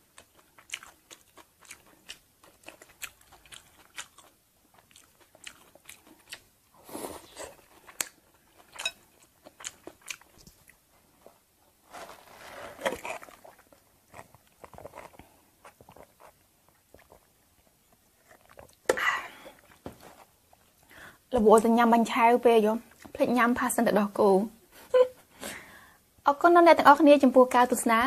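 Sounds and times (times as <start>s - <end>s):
crunching crispy food: 11.8s - 15.3s.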